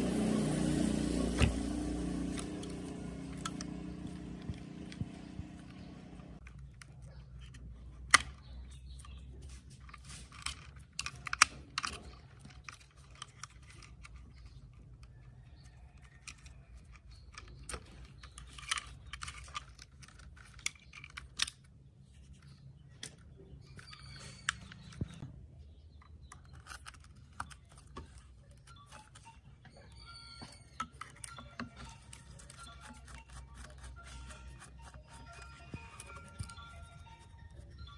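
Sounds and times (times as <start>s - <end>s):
low steady hum: 0.0s - 8.4s.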